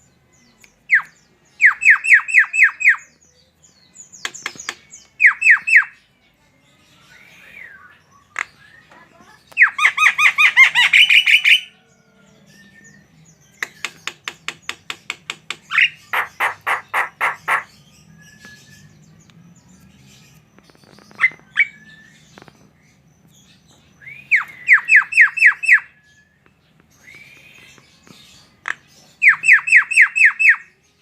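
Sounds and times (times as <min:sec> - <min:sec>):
bird calling rapid repeated notes: 0:15.7 - 0:17.7.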